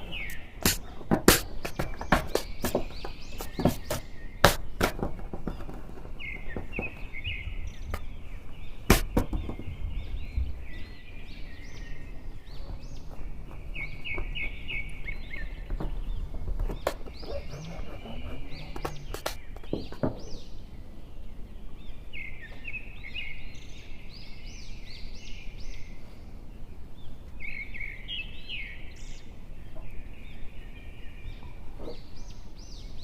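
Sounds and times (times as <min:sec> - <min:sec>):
sharp taps and knocks: 0:00.0 - 0:07.2, 0:08.8 - 0:09.7, 0:15.6 - 0:20.5
birds chirping: 0:00.0 - 0:33.0.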